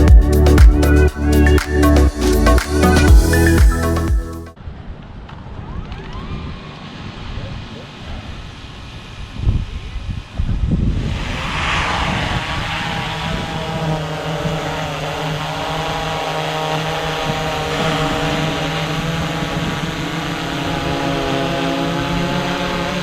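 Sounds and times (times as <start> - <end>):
drone propellers buzzing: 11.1 - 20.7.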